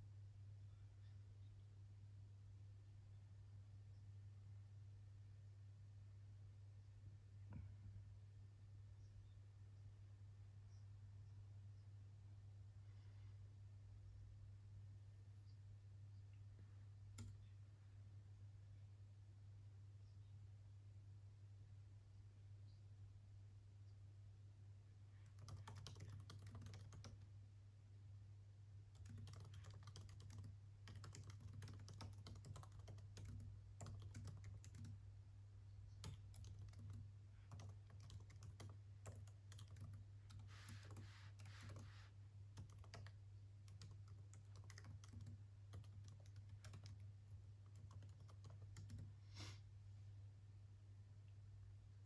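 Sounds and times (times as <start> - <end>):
faint low hum: 0.0 - 52.0
typing on computer keyboard: 25.3 - 27.3, 29.0 - 35.0, 36.0 - 41.9, 42.6 - 49.1.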